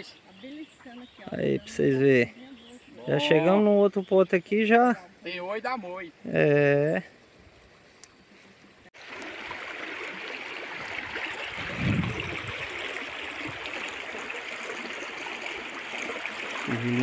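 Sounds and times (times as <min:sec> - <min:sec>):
river water rushing: 0:09.0 - 0:17.0.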